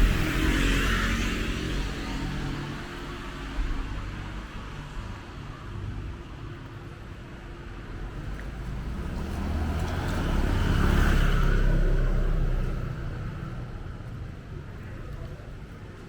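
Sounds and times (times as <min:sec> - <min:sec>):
vehicle driving past: 0:00.0 - 0:04.2, 0:08.1 - 0:14.0.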